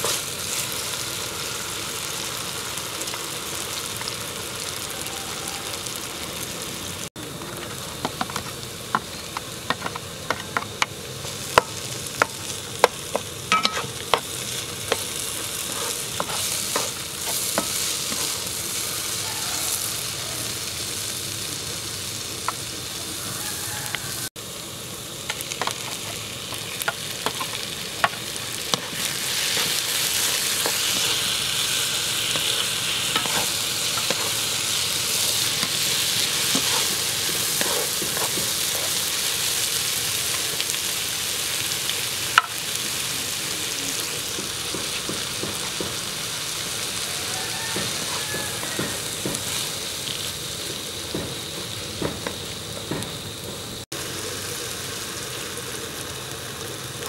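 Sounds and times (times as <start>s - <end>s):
vegetables sizzling in oil: 0.0s - 57.0s
wooden spatula scraping a pan: 15.6s - 18.4s, 36.4s - 39.0s.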